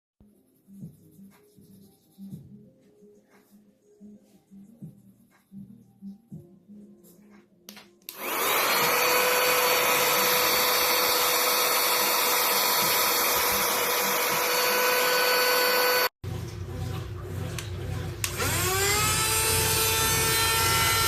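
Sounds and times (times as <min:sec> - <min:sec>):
handheld vacuum cleaner whine: 0:08.1 - 0:16.1, 0:18.2 - 0:21.0.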